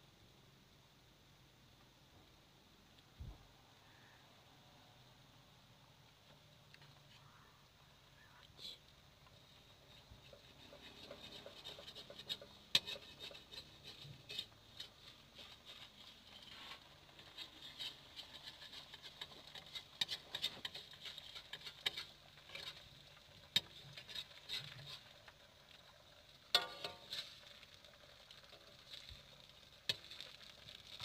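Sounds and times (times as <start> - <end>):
batter frying in hot oil: 5.6 - 31.0
metal spatula scraping a pan: 9.6 - 25.9, 26.5 - 28.0.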